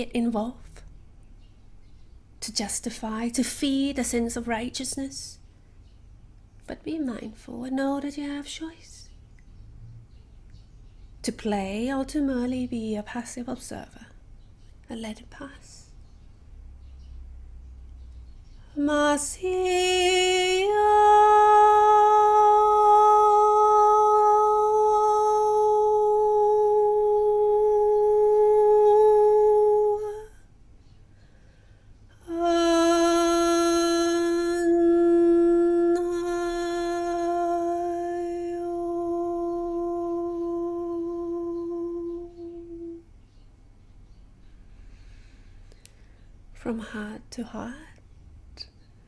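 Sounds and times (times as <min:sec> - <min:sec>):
woman toning long held notes: 0:18.8 - 0:30.3, 0:32.2 - 0:43.0.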